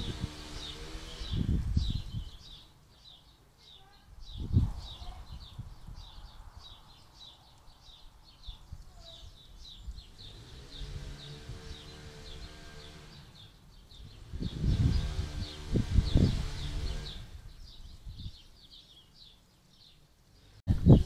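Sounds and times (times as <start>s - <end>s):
wind buffeting microphone: 0.0s - 2.6s, 4.1s - 6.8s, 8.4s - 18.4s, 20.7s - 21.0s
small bird chirping: 0.0s - 21.0s.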